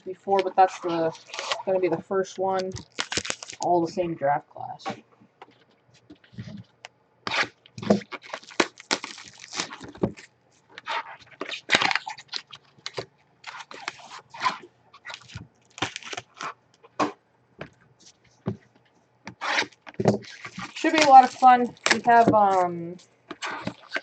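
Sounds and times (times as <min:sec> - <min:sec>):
wrappers crinkling: 0:00.4 - 0:01.8, 0:02.5 - 0:03.7, 0:07.3 - 0:16.9, 0:19.4 - 0:24.0
card packs tearing open: 0:02.8 - 0:03.6, 0:07.3 - 0:16.6, 0:19.4 - 0:22.7, 0:23.3 - 0:24.0.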